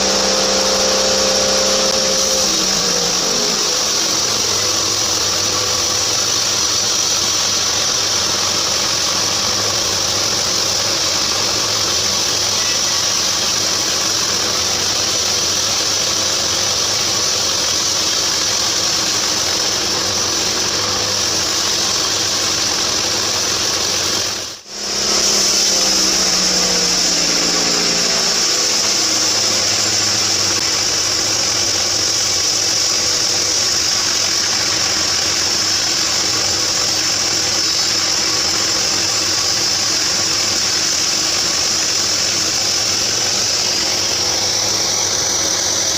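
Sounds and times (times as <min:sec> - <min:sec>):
band saw blade cutting log: 0:00.0 - 0:06.0, 0:24.7 - 0:45.8
sawmill motor hum: 0:00.0 - 0:45.9.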